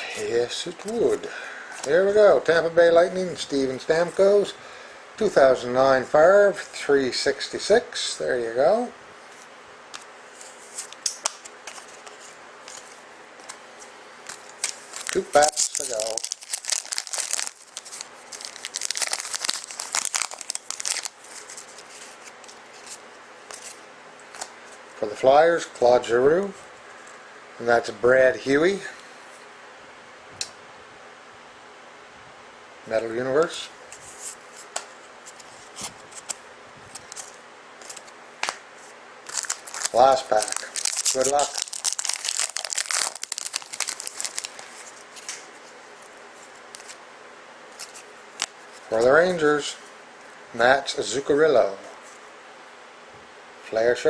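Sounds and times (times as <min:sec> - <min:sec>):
card pack wrapper tearing and crinkling: 0:14.3 - 0:23.8, 0:35.8 - 0:38.6, 0:39.2 - 0:45.6, 0:46.7 - 0:47.0, 0:47.8 - 0:48.6.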